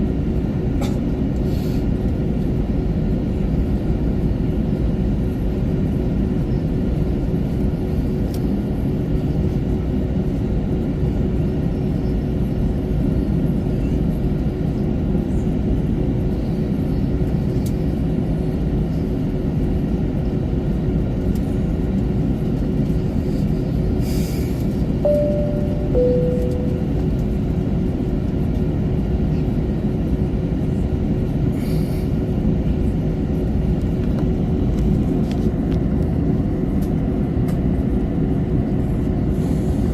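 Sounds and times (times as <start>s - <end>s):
airplane cabin rumble and hum: 0.0s - 39.9s
two-tone cabin chime: 25.0s - 27.2s.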